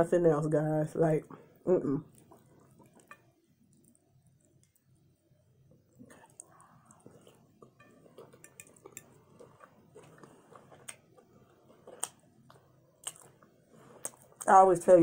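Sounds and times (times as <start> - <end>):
chewing and wet mouth sounds: 2.0 - 5.0, 5.6 - 14.6
fork clicking against glass dish: 7.8 - 9.1.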